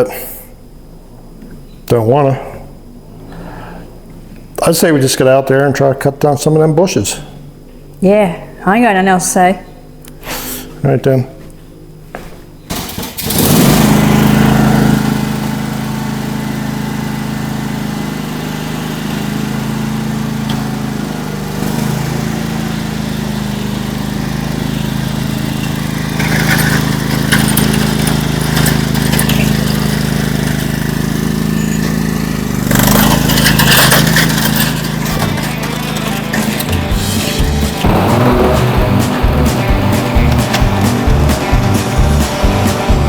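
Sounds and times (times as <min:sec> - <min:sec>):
tractor engine running: 0:12.7 - 0:43.0.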